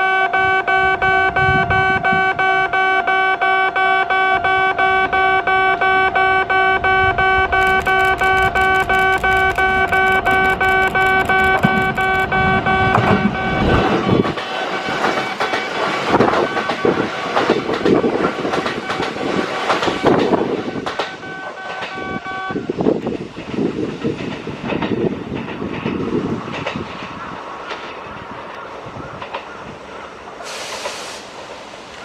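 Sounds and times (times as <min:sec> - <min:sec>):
steady high tone: 0:00.0 - 0:22.8
train wheels clattering: 0:07.5 - 0:32.0.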